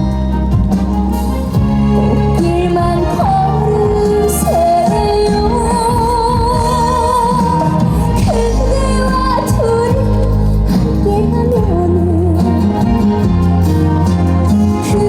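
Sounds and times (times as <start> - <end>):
loud backing track: 0.0 - 15.0
woman singing a ballad: 2.0 - 13.4, 14.4 - 15.0.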